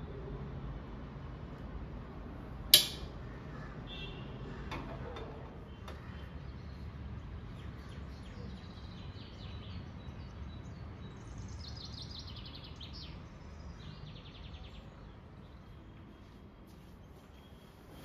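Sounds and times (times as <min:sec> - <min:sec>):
low outdoor hum: 0:00.0 - 0:18.0
small birds chirping: 0:05.6 - 0:17.8.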